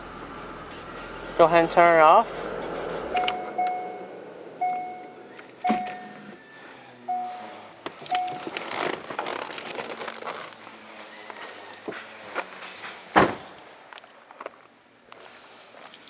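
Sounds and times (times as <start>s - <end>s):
car engine switching off: 0.0s - 6.4s, 7.0s - 10.8s
car warning chime: 2.4s - 6.4s, 7.1s - 8.6s
clunks: 2.4s - 6.4s, 7.1s - 10.7s
keys jingling: 4.8s - 6.2s, 8.0s - 10.4s
rustling: 5.1s - 16.0s.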